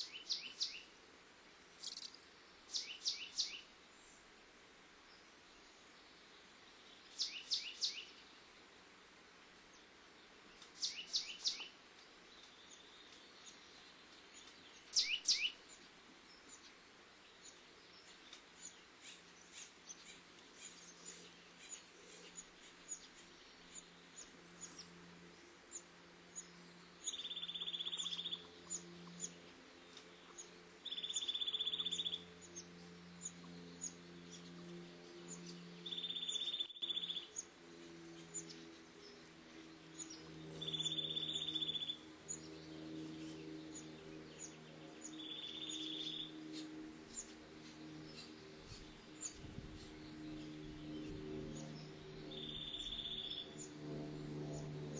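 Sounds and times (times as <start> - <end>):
low steady hum: 0.0 - 54.9
buzzy bird trills: 1.8 - 3.6, 14.4 - 15.6, 25.7 - 54.8.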